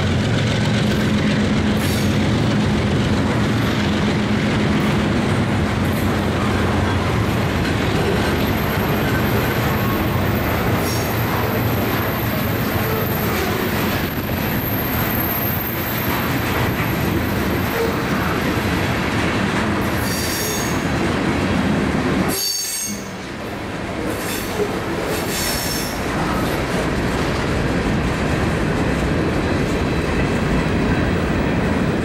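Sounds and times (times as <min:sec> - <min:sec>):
steel wheels rumbling on rails: 0:00.0 - 0:32.0
high-pitched wheel squeals: 0:22.3 - 0:23.2.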